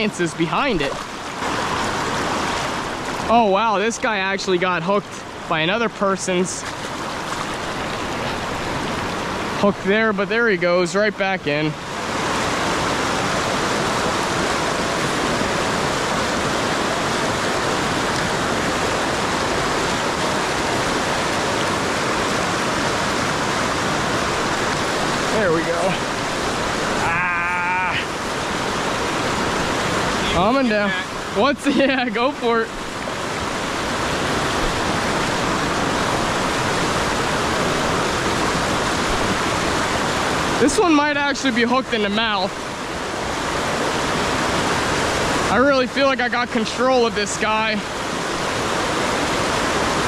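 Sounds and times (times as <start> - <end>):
river rushing over rocks: 0.0 - 50.0.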